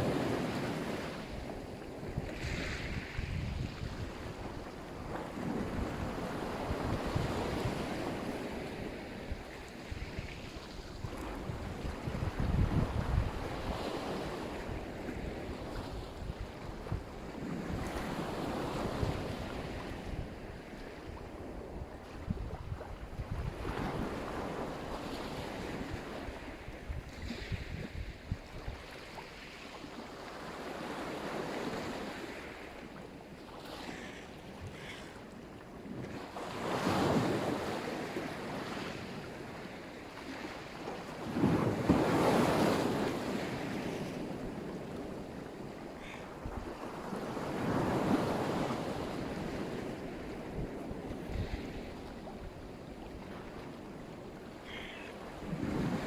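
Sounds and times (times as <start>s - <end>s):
wind buffeting microphone: 0.0s - 24.6s, 25.4s - 28.9s
waves breaking on shore: 0.0s - 56.0s.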